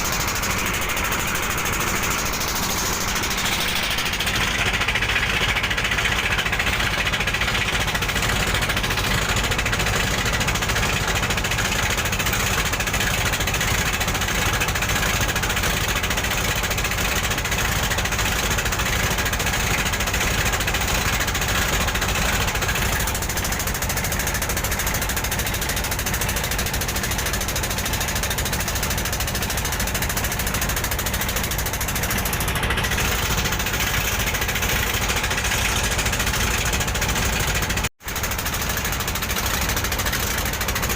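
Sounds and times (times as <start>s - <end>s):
broad rushing noise: 0.0s - 4.6s
boat engine throbbing: 0.0s - 40.9s.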